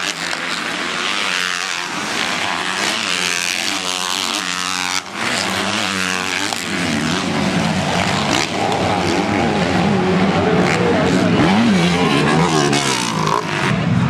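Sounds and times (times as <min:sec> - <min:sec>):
motocross bikes revving: 0:00.0 - 0:14.0.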